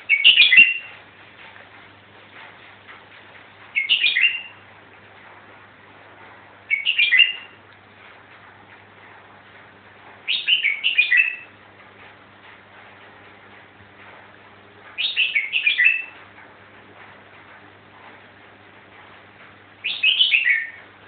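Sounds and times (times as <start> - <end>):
songbird warbling: 0.0 - 1.0, 3.8 - 4.6, 6.7 - 7.6, 10.3 - 11.5, 15.0 - 16.2, 19.8 - 20.8.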